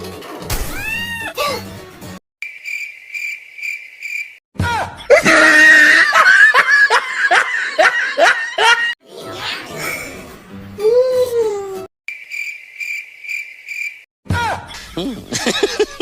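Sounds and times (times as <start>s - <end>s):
cricket chirps: 2.4s - 4.4s, 12.1s - 14.1s
shrill laughter with squeals: 5.0s - 9.0s.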